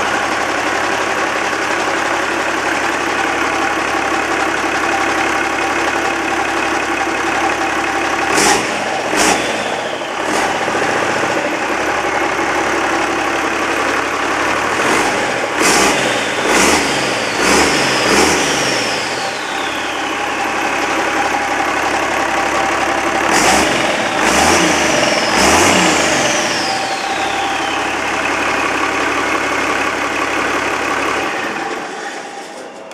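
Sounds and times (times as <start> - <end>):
diesel engine idling and revving: 0.0 - 32.9
turbocharger whistle: 8.1 - 12.2, 14.8 - 29.8.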